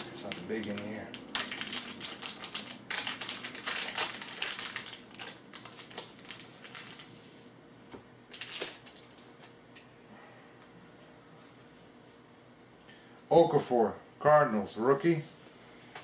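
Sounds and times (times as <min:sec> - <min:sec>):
card pack wrapper crinkling: 0:00.0 - 0:07.1, 0:08.3 - 0:09.1.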